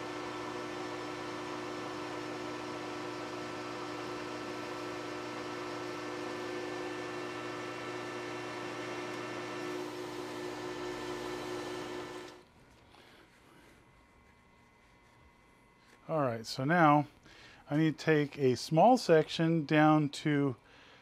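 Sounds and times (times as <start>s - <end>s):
metal lathe running: 0.0s - 12.4s.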